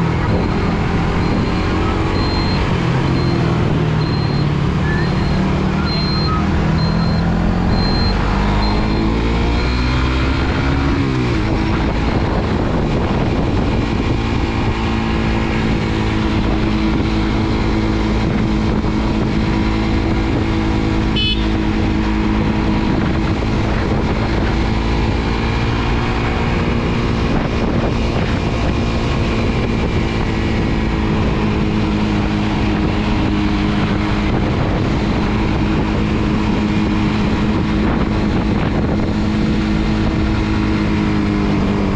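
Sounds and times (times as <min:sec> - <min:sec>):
motorcycle engine accelerating: 0:00.0 - 0:41.9
wind and road noise: 0:00.0 - 0:41.9.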